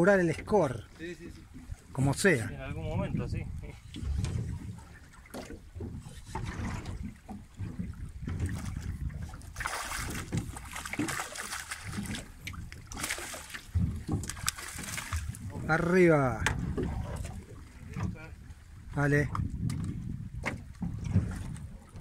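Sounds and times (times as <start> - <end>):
water slapping boat hull: 0.0 - 22.0
fish thrashing and splashing: 4.1 - 15.8.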